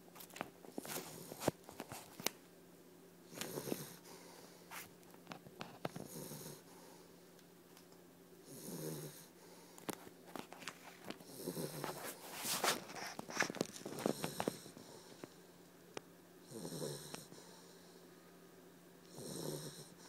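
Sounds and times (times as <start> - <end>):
puppy snoring: 3.3 - 4.6, 5.8 - 7.0, 8.4 - 9.6, 11.2 - 15.3, 16.4 - 18.0, 19.0 - 20.0.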